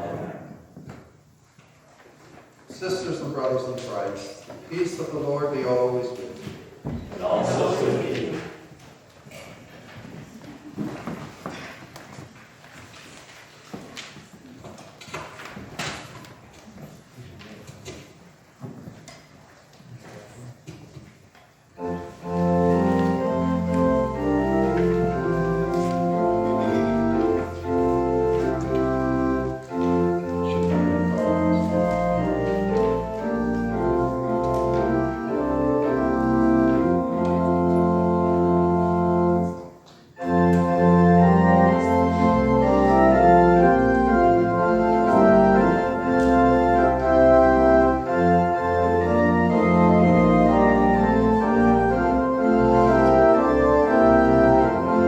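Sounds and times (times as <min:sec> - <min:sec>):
church organ playing chords: 0:21.8 - 0:55.0.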